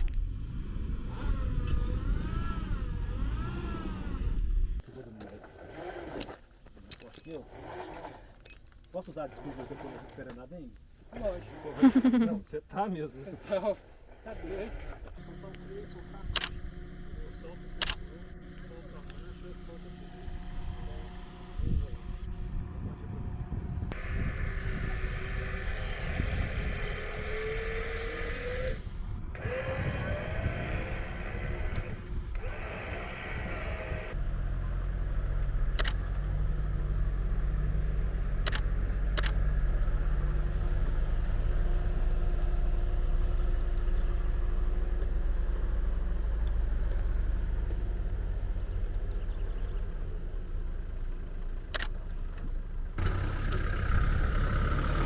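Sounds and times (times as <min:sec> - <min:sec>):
deep steady engine drone: 0:00.0 - 0:04.8, 0:14.4 - 0:55.0
vehicle engine running under load: 0:14.5 - 0:55.0
sharp clicks: 0:16.2 - 0:16.7, 0:17.8 - 0:19.2, 0:35.7 - 0:36.1, 0:38.4 - 0:39.4, 0:51.7 - 0:52.0.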